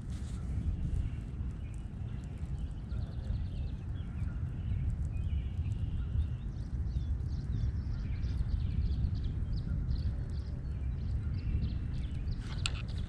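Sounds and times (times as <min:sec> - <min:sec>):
low rumble on microphone: 0:00.0 - 0:13.0
songbirds chirping and singing: 0:00.8 - 0:13.0.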